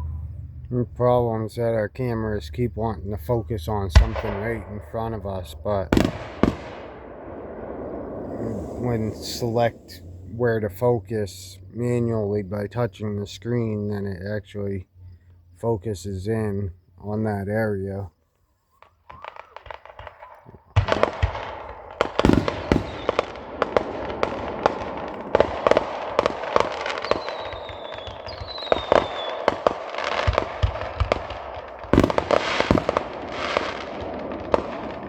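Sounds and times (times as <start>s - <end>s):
fireworks crackling: 1.0s - 11.0s, 18.8s - 35.0s
falling fireworks whistles: 3.2s - 10.7s, 18.6s - 35.0s
fireworks bursting: 3.3s - 10.6s, 18.8s - 35.0s.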